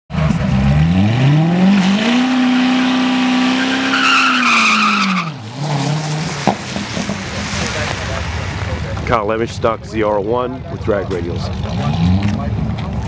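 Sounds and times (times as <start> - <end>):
car engine revving: 0.1 - 10.0, 10.8 - 13.0
tyre squeal: 2.2 - 6.2.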